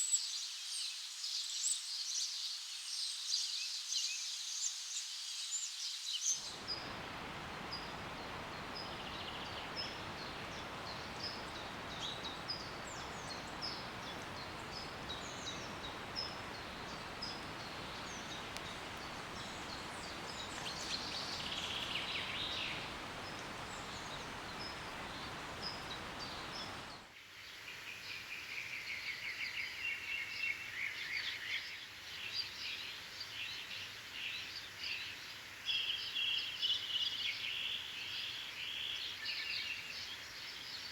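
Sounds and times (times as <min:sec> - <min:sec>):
bird chirping: 0:06.4 - 0:27.0
birds chirping and trilling: 0:06.5 - 0:27.0.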